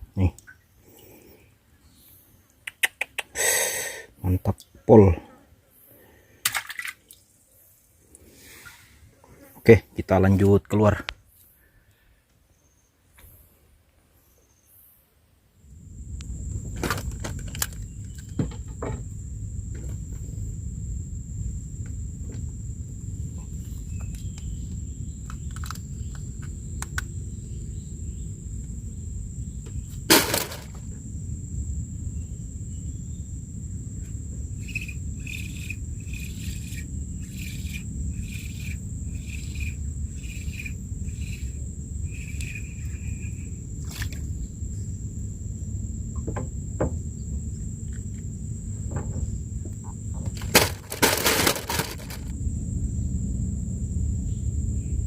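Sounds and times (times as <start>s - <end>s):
high insect drone: 3.3s - 4.4s, 15.6s - 55.0s
low rumble: 15.6s - 50.4s, 52.0s - 55.0s.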